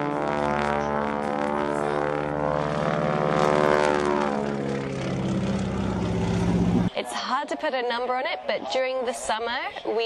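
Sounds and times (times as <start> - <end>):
propeller plane droning overhead: 0.0 - 7.0.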